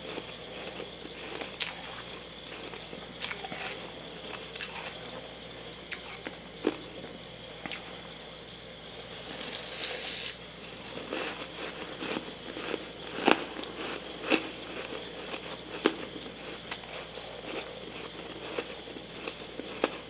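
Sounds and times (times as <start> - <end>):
chewing frost crackling: 0.0 - 20.0
soft hiss: 7.8 - 10.6.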